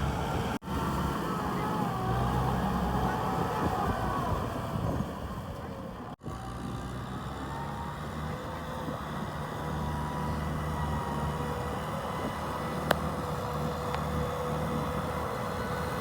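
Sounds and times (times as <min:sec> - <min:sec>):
diesel tractor engine running: 0:00.0 - 0:16.0
faint engine whine: 0:00.0 - 0:16.0.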